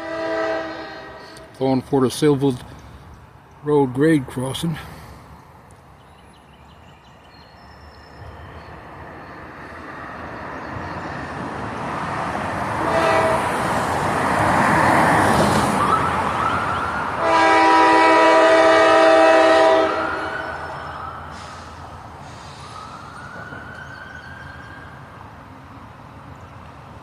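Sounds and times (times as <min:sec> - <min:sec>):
locomotive air horn blasts: 0:00.0 - 0:01.5, 0:12.8 - 0:13.6, 0:17.2 - 0:20.6
diesel locomotive rumble: 0:00.0 - 0:07.2, 0:08.0 - 0:27.0.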